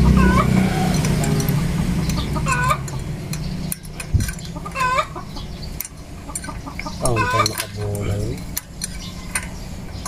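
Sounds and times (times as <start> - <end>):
chicken calling: 0.0 - 3.0, 4.5 - 5.6, 6.2 - 7.7.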